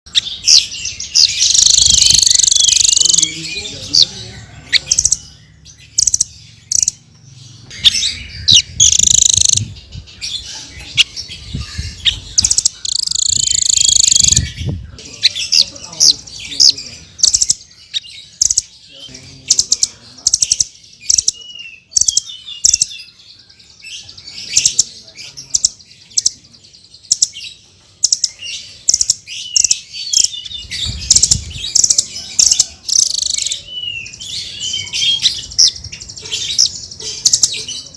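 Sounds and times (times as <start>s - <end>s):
parrot chirping: 0.1s - 7.1s, 7.7s - 14.5s, 15.2s - 18.7s, 19.5s - 23.1s, 28.0s - 37.9s
buzzy bird trills: 0.1s - 18.7s.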